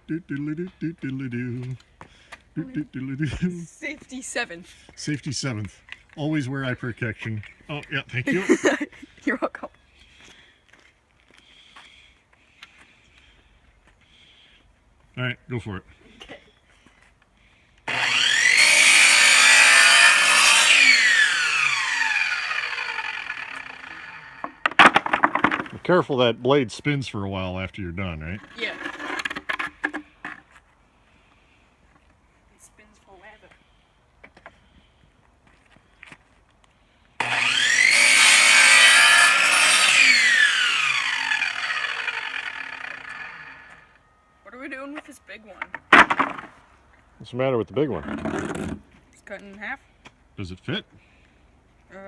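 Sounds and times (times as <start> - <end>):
electric chop saw whining: 17.9 - 25.6, 37.2 - 44.0
saw cutting decking board: 17.9 - 25.8, 37.2 - 43.9, 46.0 - 46.5, 48.0 - 48.8.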